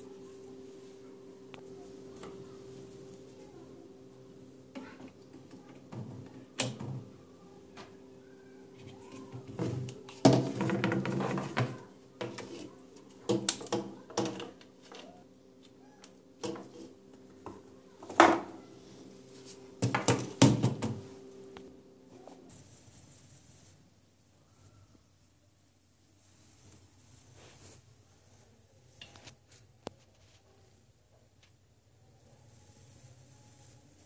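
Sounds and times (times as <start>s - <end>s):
hard objects clattering: 8.9s - 15.1s, 19.8s - 21.0s.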